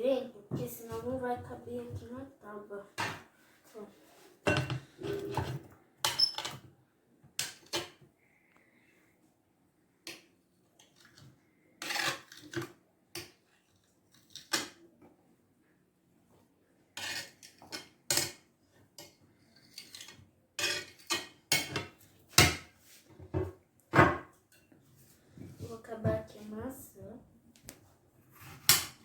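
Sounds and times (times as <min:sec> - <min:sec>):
dishes clinking: 0:04.4 - 0:06.5.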